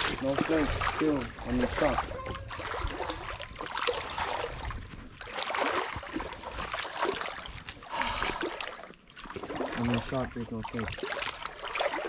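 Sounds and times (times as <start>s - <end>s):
footsteps sloshing through water: 0.0s - 12.0s.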